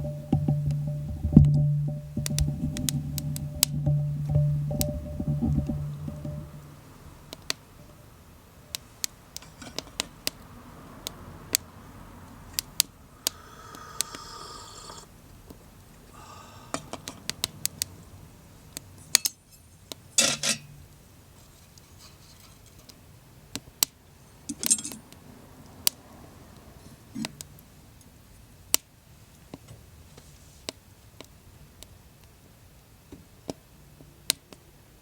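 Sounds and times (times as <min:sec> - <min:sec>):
metal tableware clattering: 0:20.2 - 0:20.8, 0:24.5 - 0:25.0.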